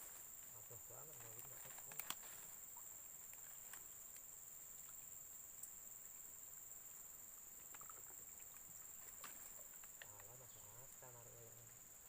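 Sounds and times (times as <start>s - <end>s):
insects droning: 0.0s - 12.0s
faint clicks: 0.4s - 6.2s, 6.8s - 10.5s.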